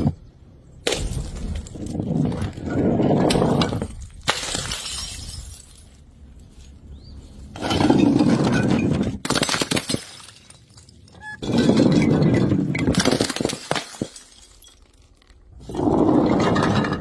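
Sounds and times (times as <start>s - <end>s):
glass bottles smashing: 0.8s - 2.2s, 3.1s - 6.1s, 7.6s - 15.2s.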